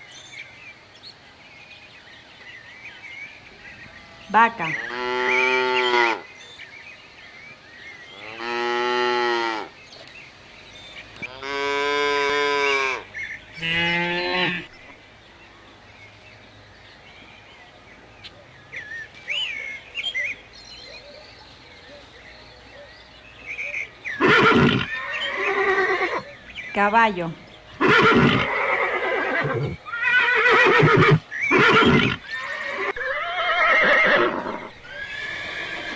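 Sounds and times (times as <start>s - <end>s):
cow mooing: 4.0s - 6.2s, 13.6s - 14.7s.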